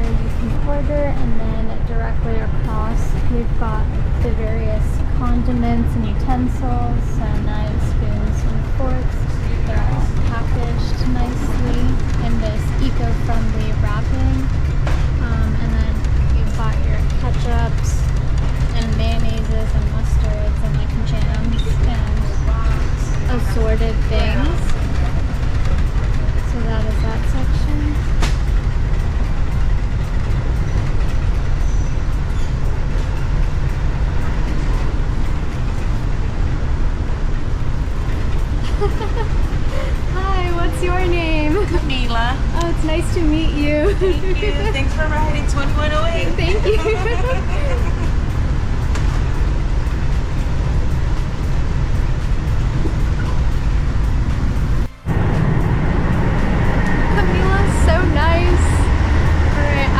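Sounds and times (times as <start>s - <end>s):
train rumbling inside carriage: 0.0s - 59.9s.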